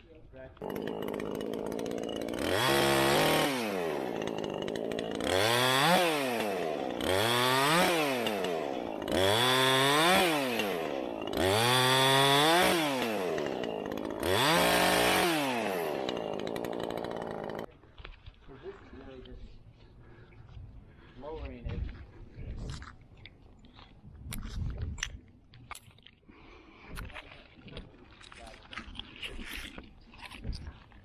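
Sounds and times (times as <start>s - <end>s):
chainsaw engine revving: 0.6s - 17.7s.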